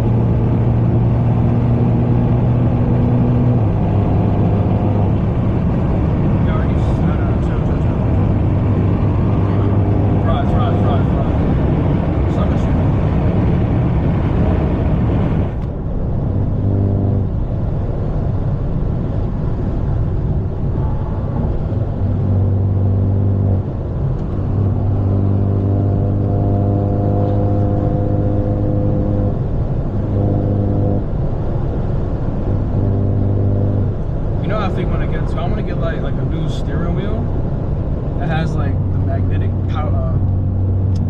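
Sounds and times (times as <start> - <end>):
car exhaust drone: 0.0 - 41.0.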